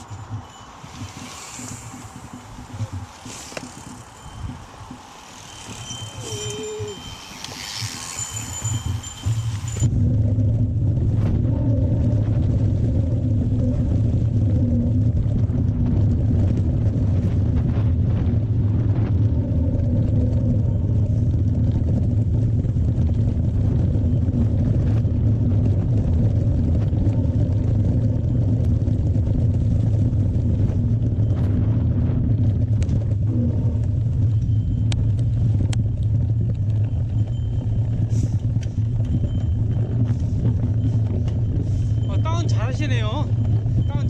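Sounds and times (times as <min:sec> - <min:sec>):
bike clicks and knocks: 0:00.0 - 0:09.9
wind rumble on microphone: 0:00.0 - 0:44.0.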